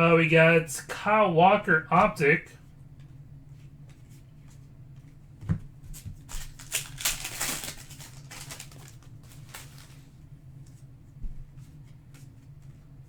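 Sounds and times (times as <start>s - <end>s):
cards and wrapper crinkling: 6.2s - 10.1s.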